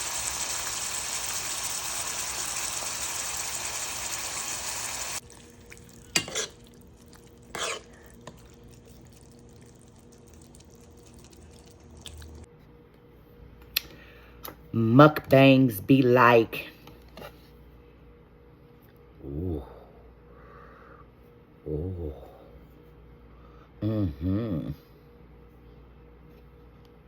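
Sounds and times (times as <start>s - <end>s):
water-like hiss: 0.0s - 5.2s.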